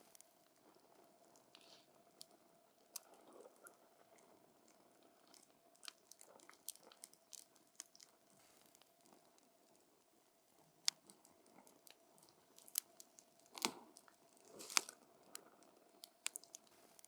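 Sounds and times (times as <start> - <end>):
low steady hiss: 0.0 - 17.0
wood fire crackling and popping: 10.8 - 17.0.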